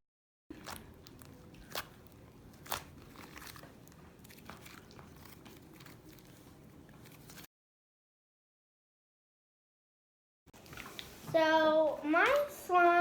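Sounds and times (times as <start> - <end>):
slime squished in hands: 0.5 - 7.5.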